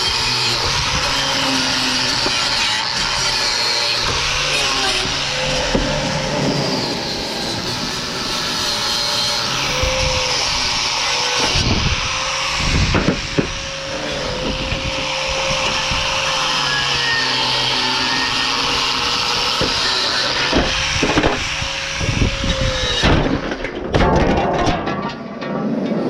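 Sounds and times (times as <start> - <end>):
electric grinder on steel: 0.0 - 23.8
knocks and scrapes: 11.4 - 16.2, 19.3 - 26.0.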